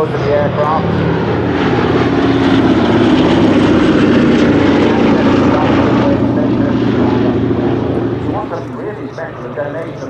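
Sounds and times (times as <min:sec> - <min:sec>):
radial piston engines running: 0:00.0 - 0:10.0.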